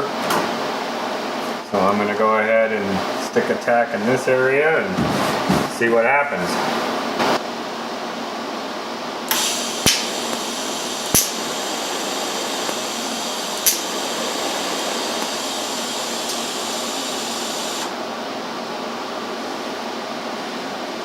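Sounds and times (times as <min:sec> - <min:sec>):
welding arc pops: 0:09.3 - 0:11.6, 0:12.6 - 0:14.0, 0:15.1 - 0:15.4
welding arc hissing: 0:09.3 - 0:18.0.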